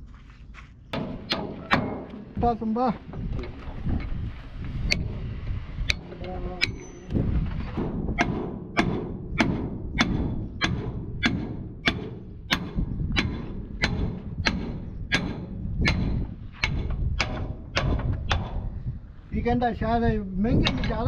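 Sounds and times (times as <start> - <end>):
low steady rumble: 0.0 - 21.0
hammer striking metal: 0.9 - 2.6, 7.8 - 18.7.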